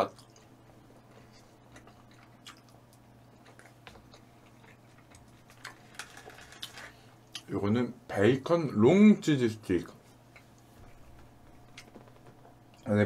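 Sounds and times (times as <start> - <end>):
faint chewing: 0.0 - 7.5, 10.1 - 12.0.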